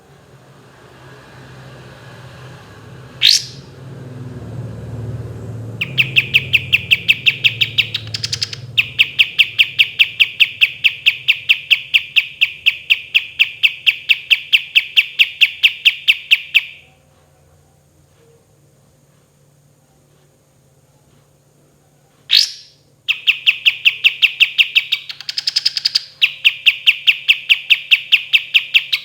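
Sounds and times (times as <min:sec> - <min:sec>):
songbird whistle and rattling trill: 0:03.2 - 0:03.7, 0:05.8 - 0:16.9, 0:22.3 - 0:29.0.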